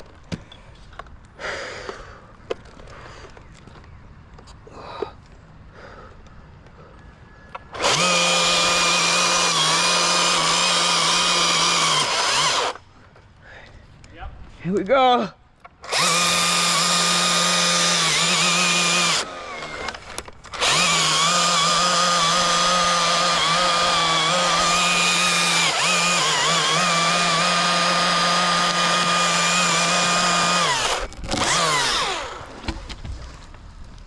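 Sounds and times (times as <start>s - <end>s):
chainsaw cutting tree limb: 7.7s - 12.8s, 15.8s - 33.3s.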